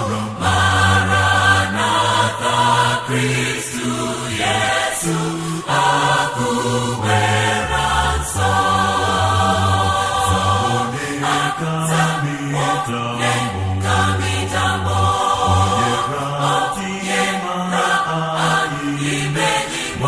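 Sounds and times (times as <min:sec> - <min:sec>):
choir singing: 0:00.0 - 0:20.0
low bass line: 0:13.5 - 0:16.1.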